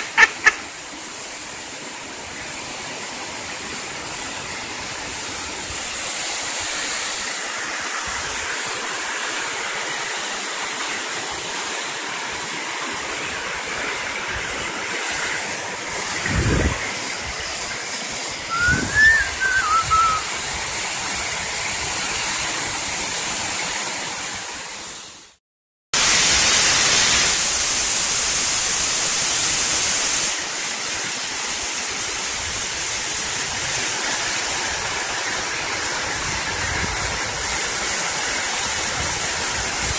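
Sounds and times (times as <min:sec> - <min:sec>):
waterfall rushing: 0:00.0 - 0:24.9.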